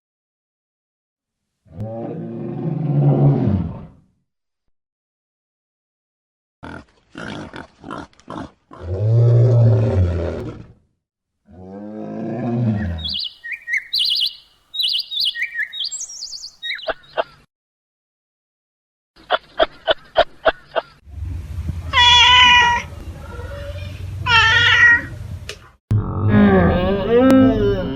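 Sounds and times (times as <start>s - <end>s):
animal calls: 12.6s - 17.4s
high quick chirps: 13.0s - 17.0s.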